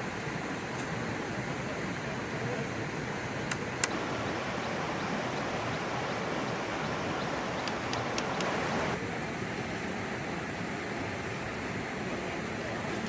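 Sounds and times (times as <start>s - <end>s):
flowing water rushing: 3.9s - 9.0s
sharp clicks: 7.5s - 9.0s.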